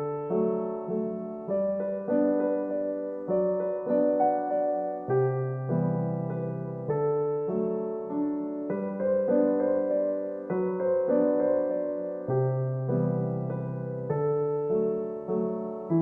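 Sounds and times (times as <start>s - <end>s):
gentle solo piano piece: 0.0s - 16.0s.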